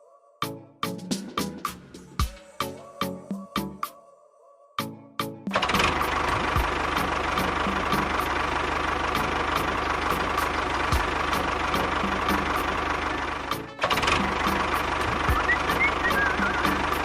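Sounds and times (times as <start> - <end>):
small engine knocking steadily: 5.6 - 17.0.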